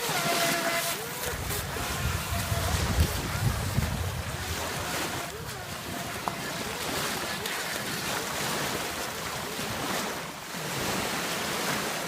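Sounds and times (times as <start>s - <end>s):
surf washing on beach: 0.0s - 12.0s
wind buffeting microphone: 1.0s - 10.0s.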